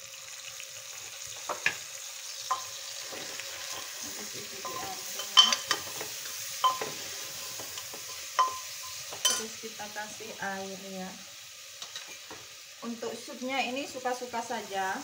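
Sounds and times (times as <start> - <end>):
meat sizzling in a pot: 0.0 - 15.0
metal spoon clinking on pot: 2.5 - 2.8, 4.6 - 9.5.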